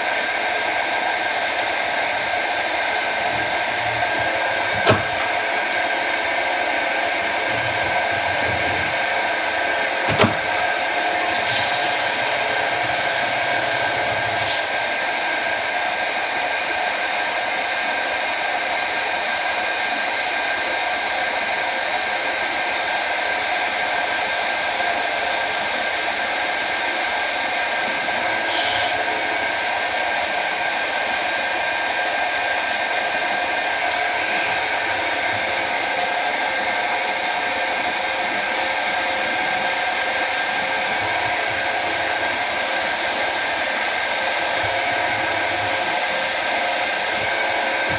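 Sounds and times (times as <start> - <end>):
lathe whirring: 1.3 - 17.3, 27.8 - 47.9.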